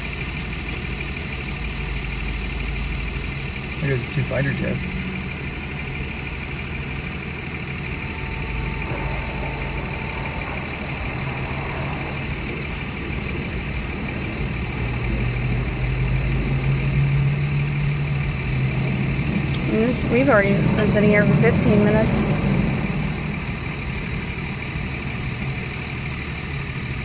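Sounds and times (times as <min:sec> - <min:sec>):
vehicle engines idling: 0:00.0 - 0:27.0.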